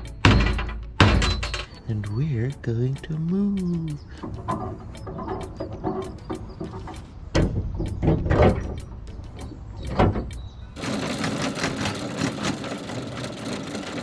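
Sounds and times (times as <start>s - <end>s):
knocks and heavy thumps: 0.0s - 1.8s, 4.1s - 12.8s
boat engine rattling drone: 3.2s - 9.6s, 10.3s - 14.0s.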